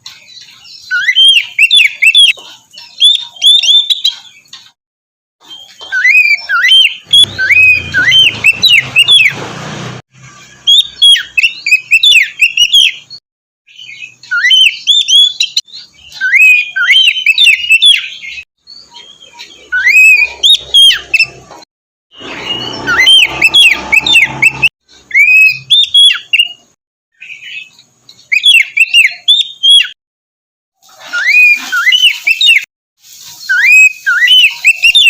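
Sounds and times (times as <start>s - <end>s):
magpie-robin whistled song: 0.0s - 4.6s, 5.4s - 9.4s, 10.2s - 21.6s, 22.2s - 30.0s, 31.1s - 32.7s, 33.3s - 35.0s.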